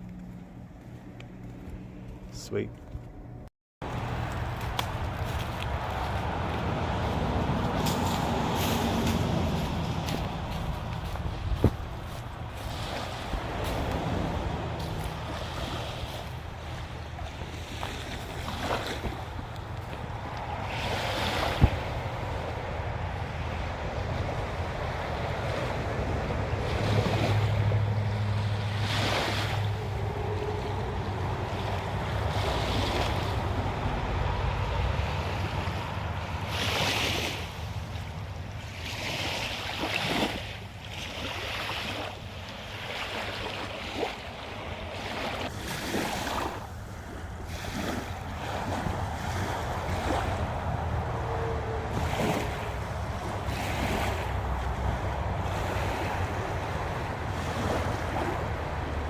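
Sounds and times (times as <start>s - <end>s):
wind buffeting microphone: 3.8s - 39.3s.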